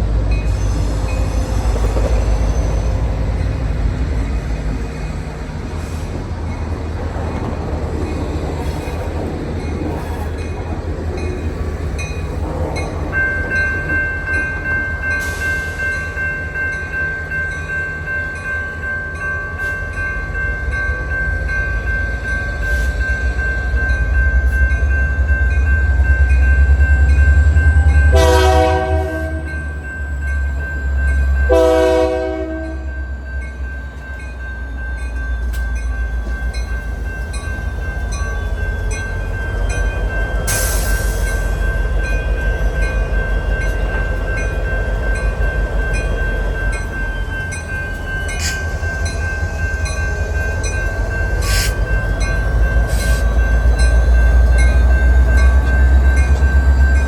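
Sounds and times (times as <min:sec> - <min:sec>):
diesel locomotive rumbling past: 0:00.0 - 0:57.0
train horn blasts: 0:28.1 - 0:29.6, 0:31.5 - 0:32.9.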